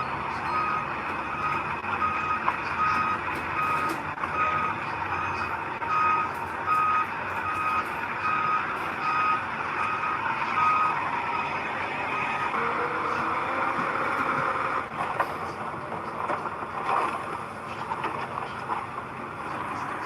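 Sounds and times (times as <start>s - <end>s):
reversing alarm beeping: 0.0s - 14.8s.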